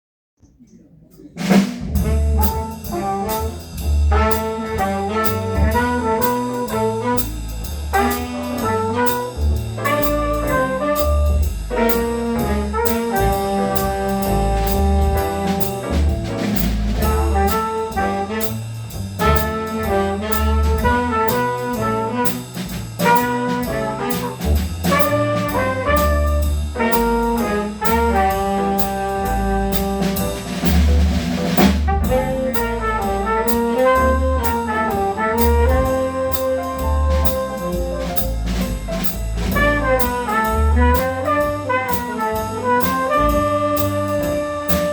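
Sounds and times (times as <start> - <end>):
brass section chords: 1.4 - 44.9
jazz band playing: 1.4 - 44.9.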